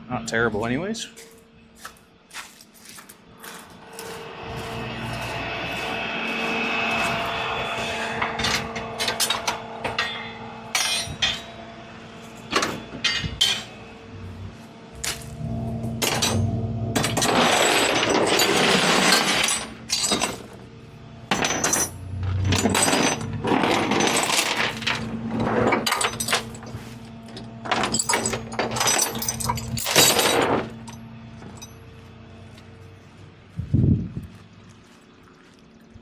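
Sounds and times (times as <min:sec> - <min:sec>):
metal clattering and rattling: 0:16.0 - 0:20.6, 0:21.3 - 0:31.8.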